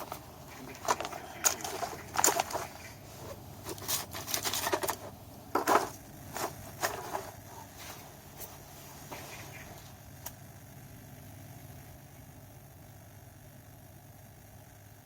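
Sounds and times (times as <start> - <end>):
knife scraping and cracking wood: 0.8 - 7.7.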